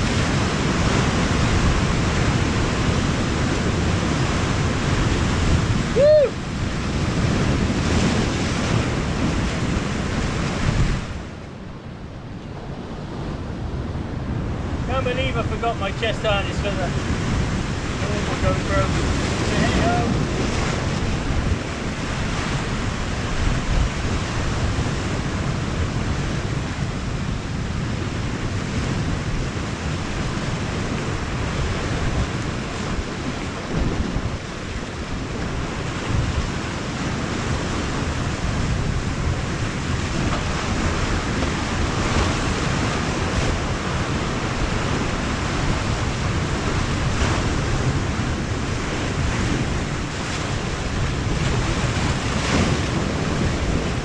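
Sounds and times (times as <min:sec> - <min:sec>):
sea surf: 0:00.0 - 0:54.0
wind gusts rumbling on microphone: 0:00.0 - 0:54.0.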